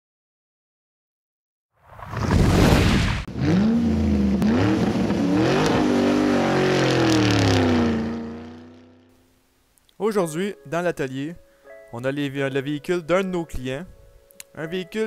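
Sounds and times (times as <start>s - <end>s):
car engine revving: 3.2s - 9.1s.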